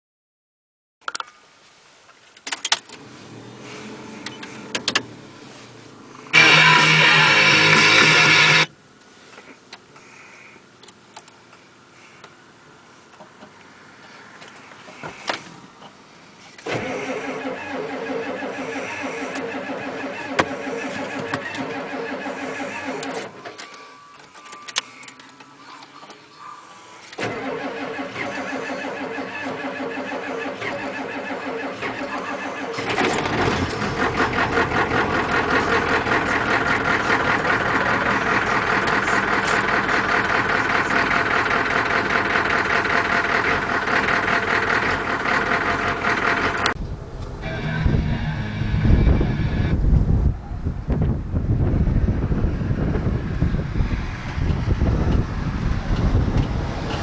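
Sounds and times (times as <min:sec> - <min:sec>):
diesel engine running rough: 0:03.0 - 0:10.8, 0:27.2 - 0:57.0
starter cranking: 0:06.4 - 0:08.7, 0:27.1 - 0:50.3.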